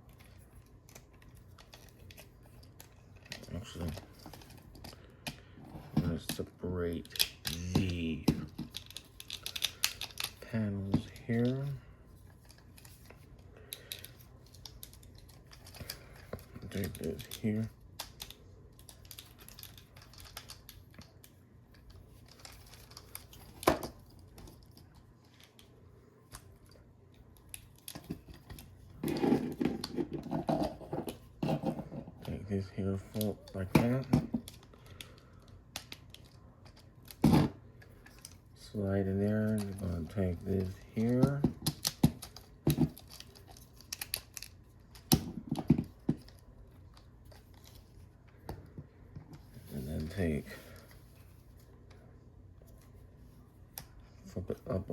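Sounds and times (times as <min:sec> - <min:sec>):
plastic toy parts clicking: 0:06.9 - 0:10.4, 0:13.7 - 0:21.4, 0:39.5 - 0:47.8.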